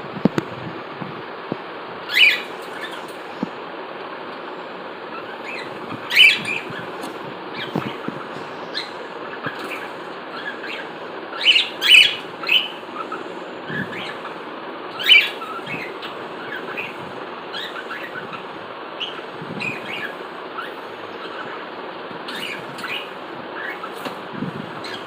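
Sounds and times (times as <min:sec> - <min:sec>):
steady background hiss: 0:00.0 - 0:25.0
cockatiels chirping and calling: 0:02.1 - 0:03.4, 0:05.1 - 0:21.6, 0:22.2 - 0:24.2, 0:24.8 - 0:25.0.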